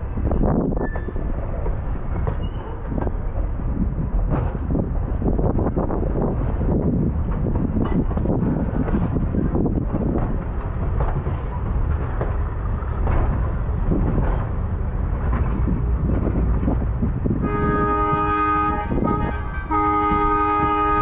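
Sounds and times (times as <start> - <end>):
locomotive rumbling and clattering: 0.0 - 21.0
locomotive horn chord: 17.4 - 21.0.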